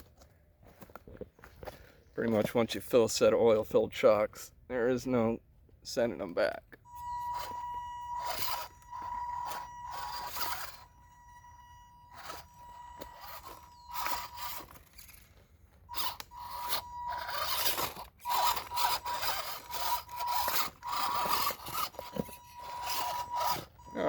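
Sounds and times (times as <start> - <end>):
steady high whine: 6.8 - 24.0
rc car electric motor whirring: 6.9 - 24.0.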